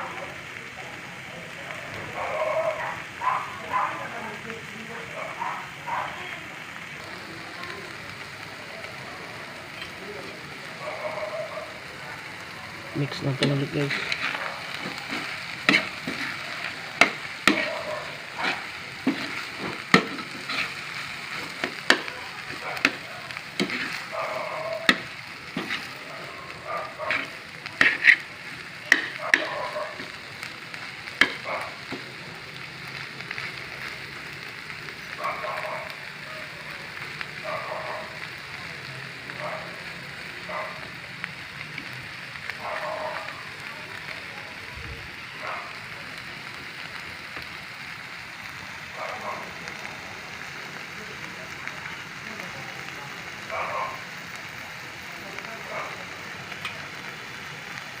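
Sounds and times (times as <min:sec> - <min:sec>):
meat sizzling in a pan: 0:00.0 - 0:58.0
spatula scraping: 0:13.4 - 0:26.0, 0:26.8 - 0:28.3.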